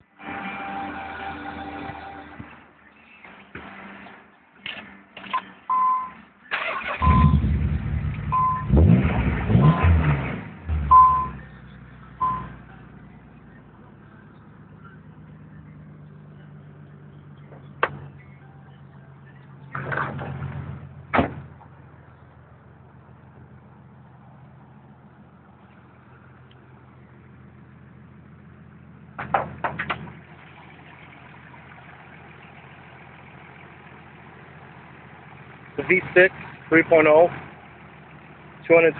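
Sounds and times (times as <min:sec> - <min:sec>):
car engine revving and idling: 0:00.0 - 0:38.9
short beeps: 0:05.7 - 0:06.2, 0:06.9 - 0:07.4, 0:08.3 - 0:08.7, 0:10.9 - 0:11.4, 0:12.2 - 0:12.6.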